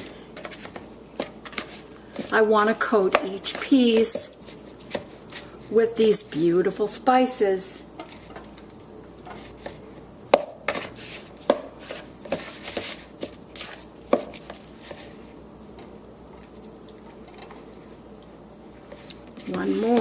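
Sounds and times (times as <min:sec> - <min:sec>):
utensils scraping a dish: 0:19.0 - 0:20.0.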